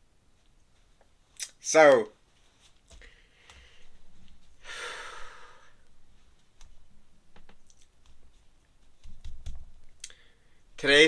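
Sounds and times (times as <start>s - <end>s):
person sighing: 4.6s - 5.8s.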